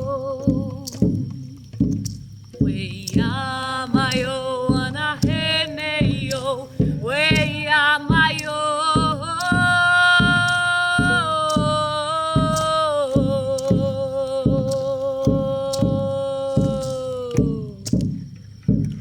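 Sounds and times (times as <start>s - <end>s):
woman chanting in wavering notes: 0.0s - 1.3s, 2.6s - 18.2s
steady low drumbeat: 0.0s - 19.0s.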